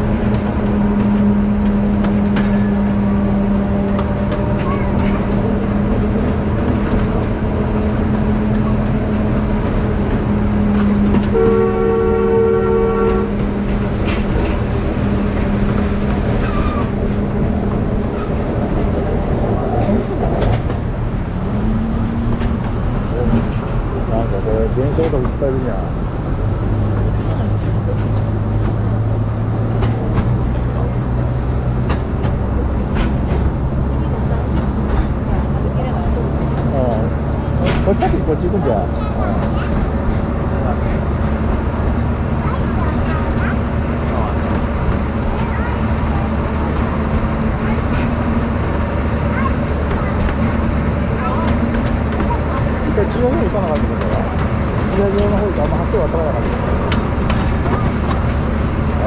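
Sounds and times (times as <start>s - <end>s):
train engine drone: 0.0s - 59.0s
wheels rumbling on rails: 0.0s - 59.0s
train horn blast: 10.8s - 13.7s.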